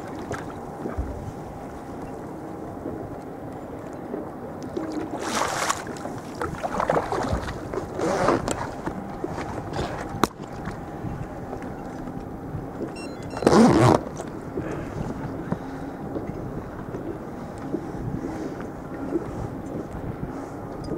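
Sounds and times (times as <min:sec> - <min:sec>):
splashing water: 0:04.6 - 0:10.8
wind noise: 0:06.4 - 0:20.9.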